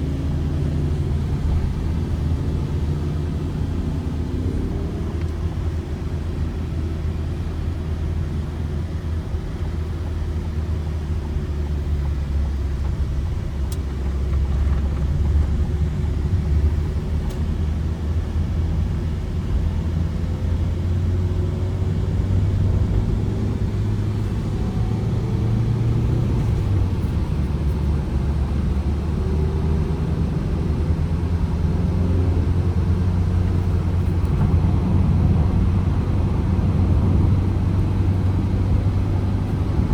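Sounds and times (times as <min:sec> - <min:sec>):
van engine running while driving: 0:00.0 - 0:39.9.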